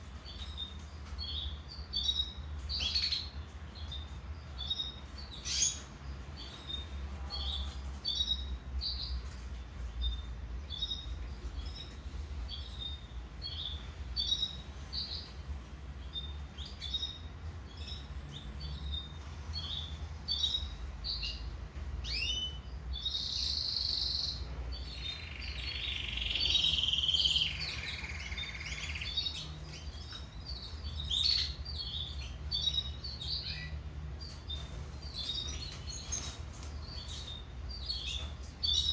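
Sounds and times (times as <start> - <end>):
canary chirping: 0.0 - 38.9
canary trilling: 16.0 - 38.9.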